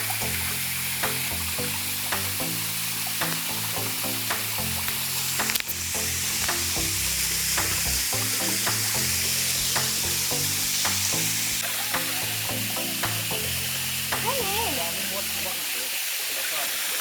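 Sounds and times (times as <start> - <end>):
soft plucked background music: 0.0 - 15.9
waterfall rushing: 0.0 - 17.0
sharp click: 4.3 - 5.8.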